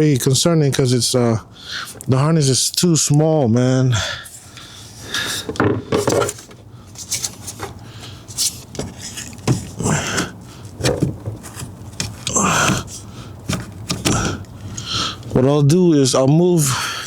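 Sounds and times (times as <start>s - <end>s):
plastic and metal parts clattering: 5.2s - 14.5s.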